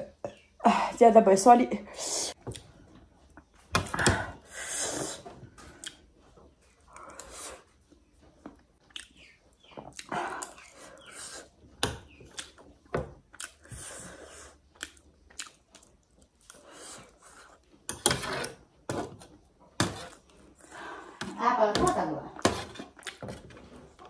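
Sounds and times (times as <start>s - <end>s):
chewing and mouth sounds: 5.6s - 17.8s, 22.8s - 23.3s
metal spoon scraping a tray: 17.9s - 19.2s.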